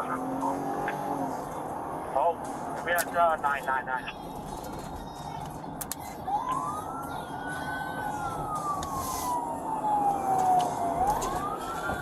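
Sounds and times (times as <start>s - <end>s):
vehicle noise: 0.0s - 12.0s
police siren wailing: 6.0s - 12.0s.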